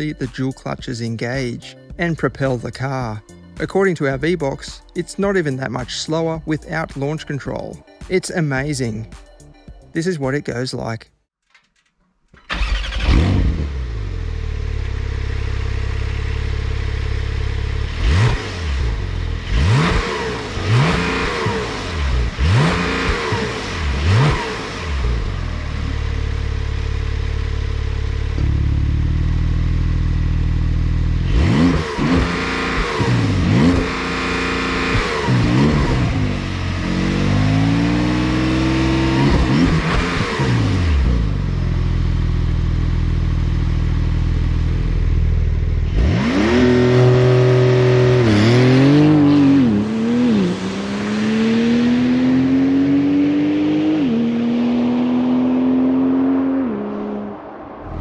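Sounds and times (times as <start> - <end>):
sports car engine accelerating: 12.5 - 58.0.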